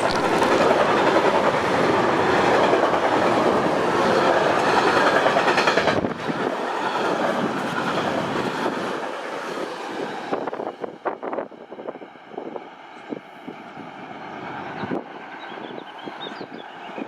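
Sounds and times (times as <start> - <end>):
wheels clicking over track: 0.0 - 8.3
train rolling past: 0.0 - 17.0.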